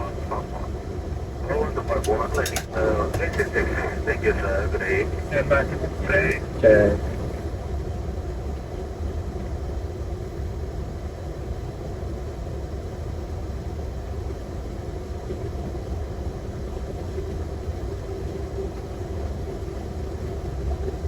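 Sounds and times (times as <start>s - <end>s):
airliner engines idling: 0.0s - 8.9s
faint steady hum: 0.0s - 21.0s.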